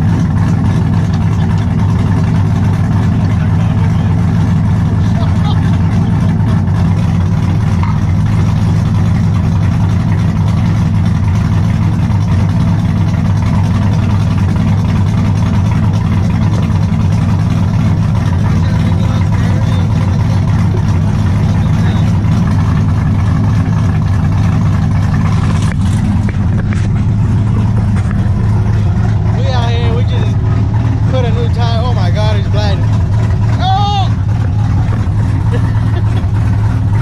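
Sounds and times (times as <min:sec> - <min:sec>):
truck engine idling: 0:00.0 - 0:37.0.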